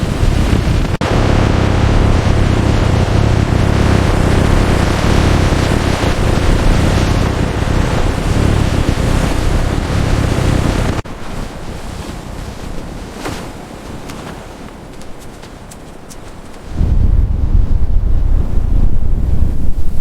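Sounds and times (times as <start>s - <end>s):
loud steady rushing noise: 0.0s - 11.2s, 16.7s - 20.0s.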